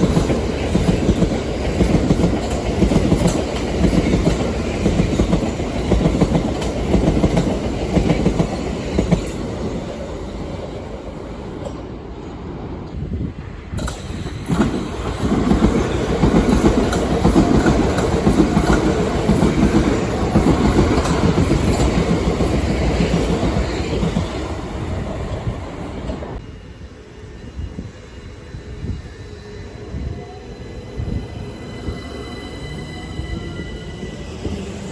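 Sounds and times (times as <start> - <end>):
train passing: 0.0 - 34.9
wheels clicking over rail joints: 13.8 - 24.2.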